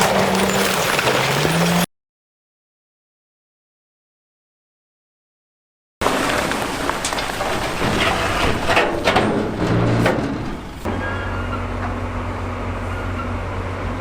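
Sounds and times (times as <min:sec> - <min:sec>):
rocks tumbling and clattering: 0:00.0 - 0:01.9, 0:06.0 - 0:10.5
diesel engine running: 0:10.6 - 0:14.0.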